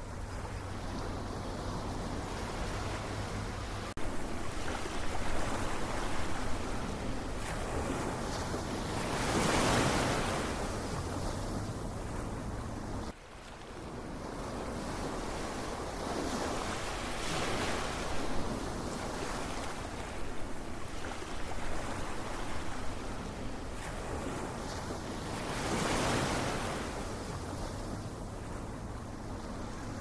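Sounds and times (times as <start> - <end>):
ocean waves washing on shore: 0.0 - 30.0.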